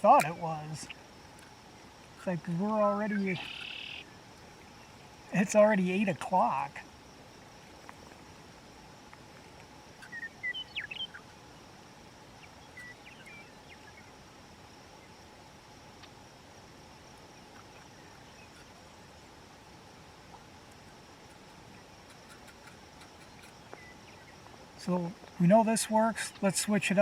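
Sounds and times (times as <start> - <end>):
insects and frogs humming: 0.0 - 27.0
bird chirping: 3.0 - 4.1, 10.0 - 11.3, 12.4 - 14.1, 21.7 - 24.9.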